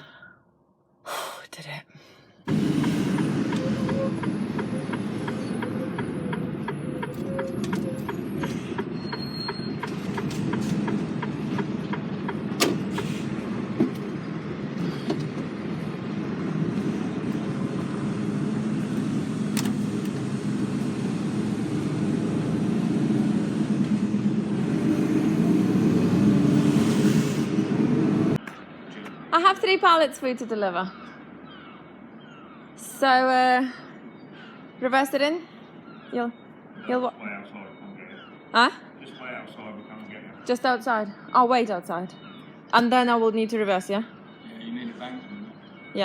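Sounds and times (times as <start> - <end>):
lorry engine and road drone: 2.4 - 29.4, 35.6 - 40.4, 43.4 - 45.9
indicator ticking: 3.5 - 12.4.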